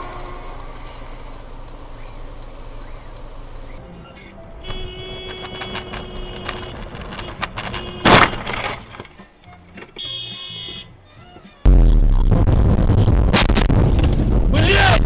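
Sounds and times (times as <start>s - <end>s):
low rumble of road noise: 0.0s - 15.0s
car horn: 3.8s - 11.0s.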